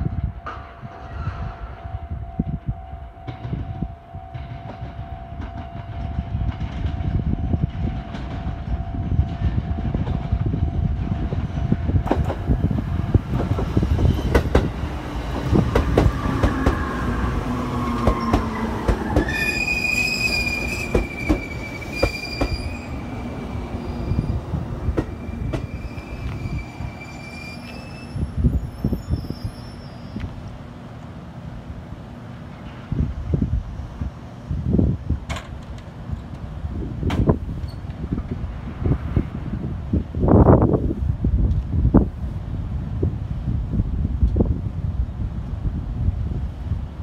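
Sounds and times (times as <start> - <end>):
train rumble: 0.0 - 47.0
train whine falling in pitch: 13.5 - 30.3
brake squeal: 18.1 - 24.4, 25.1 - 30.4.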